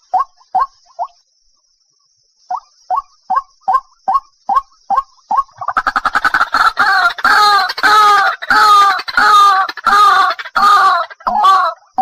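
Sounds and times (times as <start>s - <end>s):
waterhen calling: 2.5s - 12.0s.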